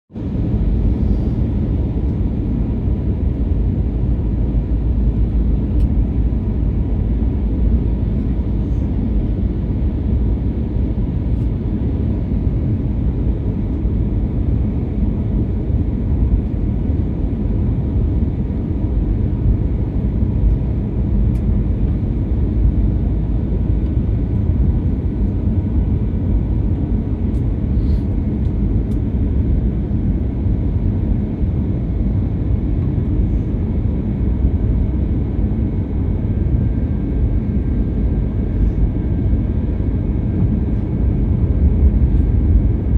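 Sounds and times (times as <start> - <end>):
airliner cabin engine rumble: 0.1 - 42.9.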